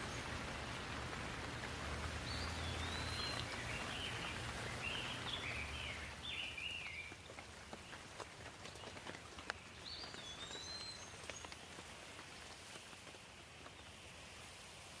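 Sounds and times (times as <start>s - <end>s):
light rain falling: 0.0s - 15.0s.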